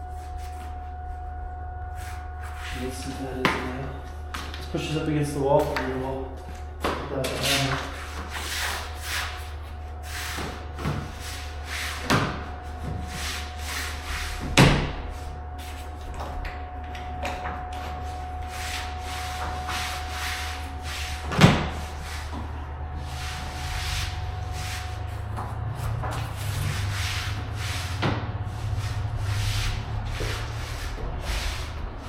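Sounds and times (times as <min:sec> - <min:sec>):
faint steady whine: 0:00.0 - 0:32.0.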